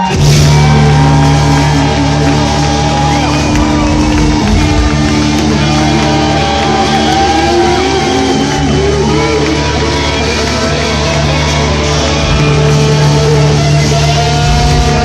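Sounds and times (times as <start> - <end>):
live rock band with guitar: 0.0 - 15.0.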